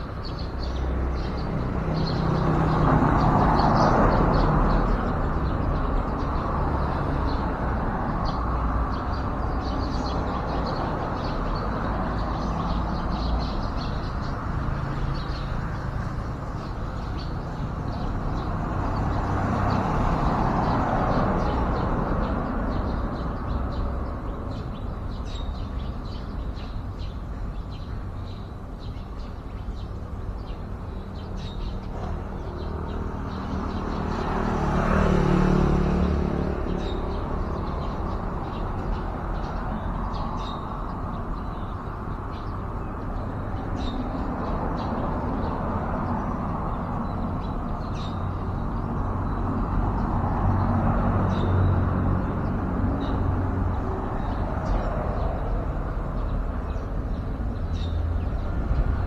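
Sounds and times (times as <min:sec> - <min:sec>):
road traffic passing: 0:00.0 - 0:59.0.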